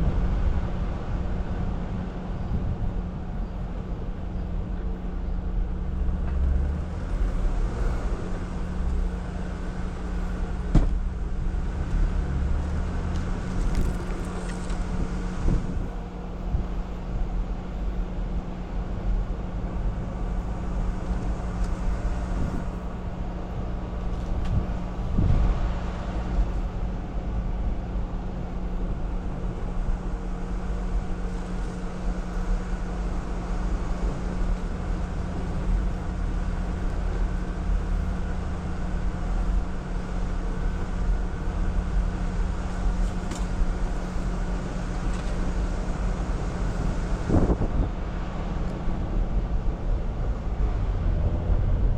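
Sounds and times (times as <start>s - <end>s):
car engine rumbling: 0.0s - 51.9s
thump: 10.7s - 11.0s.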